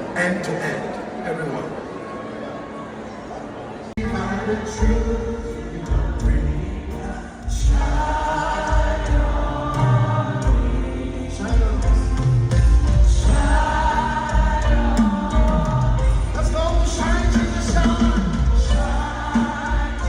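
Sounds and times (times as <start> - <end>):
band with heavy bass: 4.0 - 20.0
choir singing gospel song: 4.0 - 20.0.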